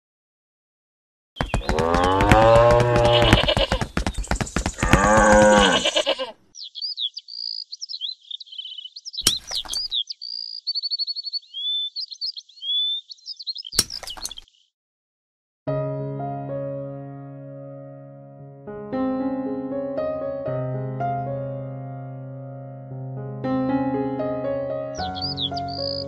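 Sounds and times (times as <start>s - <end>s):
sharp knocks: 1.4s - 5.8s
birds chirping and trilling: 1.4s - 14.7s, 25.0s - 26.0s
goat bleating: 2.7s - 3.8s, 4.8s - 6.4s.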